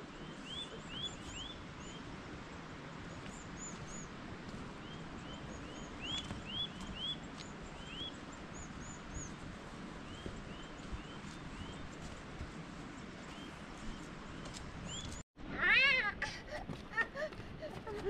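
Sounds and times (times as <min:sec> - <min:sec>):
faint outdoor hiss: 0:00.0 - 0:18.0
small bird chirping: 0:04.8 - 0:09.4, 0:13.3 - 0:15.2.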